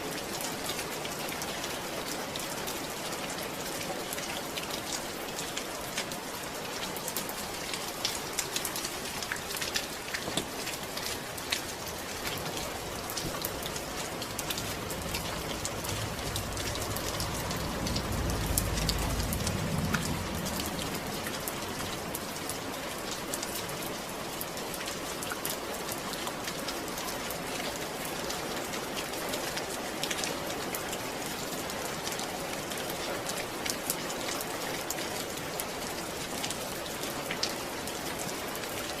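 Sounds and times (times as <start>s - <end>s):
rain pattering: 0.0s - 39.0s
low rumble: 12.9s - 22.4s.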